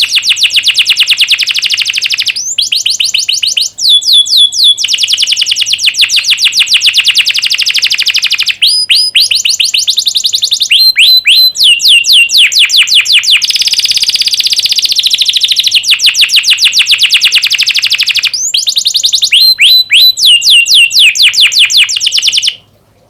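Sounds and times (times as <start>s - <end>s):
canary singing trills: 0.0s - 22.7s.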